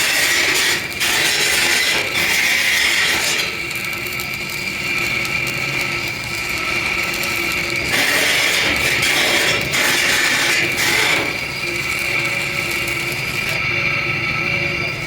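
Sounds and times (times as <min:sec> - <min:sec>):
power tool grinding metal: 0:00.0 - 0:03.7, 0:07.2 - 0:13.9.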